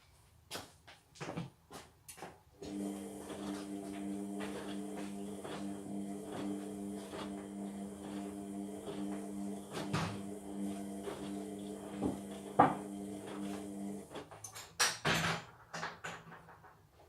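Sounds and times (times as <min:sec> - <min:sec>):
washing machine motor humming: 0:02.6 - 0:14.5.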